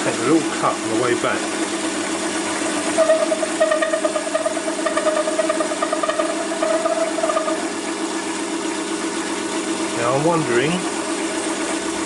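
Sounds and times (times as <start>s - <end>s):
lathe motor hum: 0.0s - 12.0s
pulsing tone of cutting tool: 2.6s - 8.7s.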